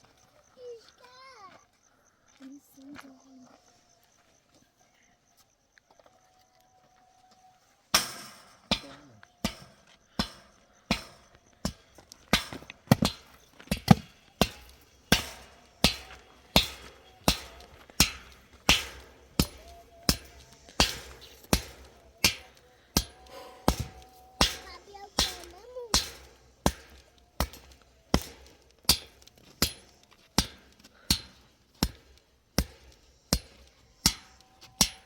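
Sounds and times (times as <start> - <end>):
hammer blows: 7.9 - 35.0.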